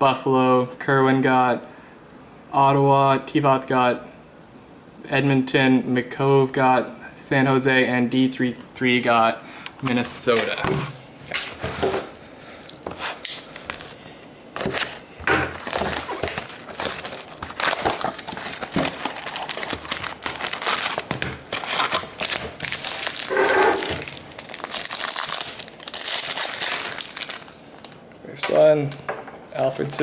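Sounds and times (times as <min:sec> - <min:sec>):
foil wrappers crinkling: 0:11.6 - 0:14.0, 0:14.6 - 0:28.1
card packs tearing open: 0:12.1 - 0:13.9, 0:14.6 - 0:28.0.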